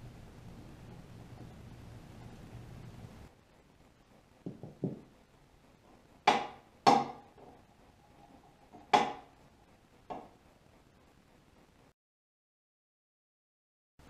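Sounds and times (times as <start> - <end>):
sharp metallic knocks: 6.3 - 7.5.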